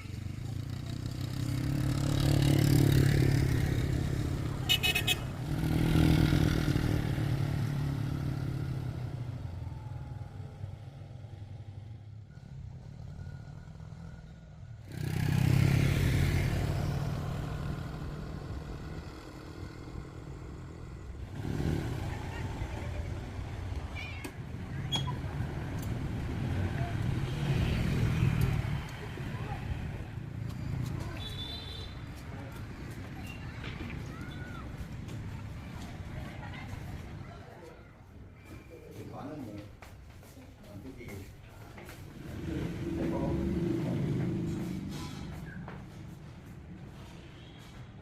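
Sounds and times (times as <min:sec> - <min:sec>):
vehicle engines passing by: 0:00.0 - 0:48.0.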